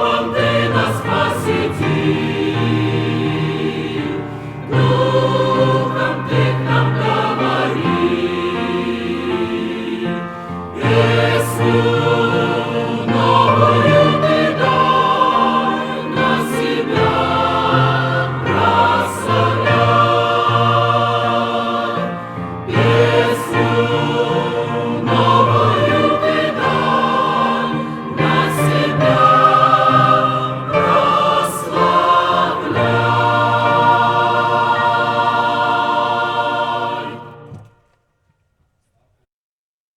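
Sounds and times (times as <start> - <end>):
choir singing a hymn: 0.0 - 37.9.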